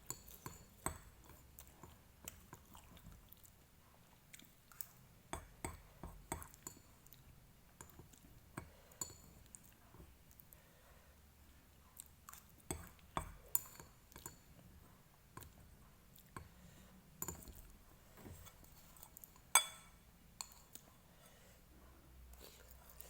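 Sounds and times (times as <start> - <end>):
utensils clinking against a dish: 19.5 - 20.6.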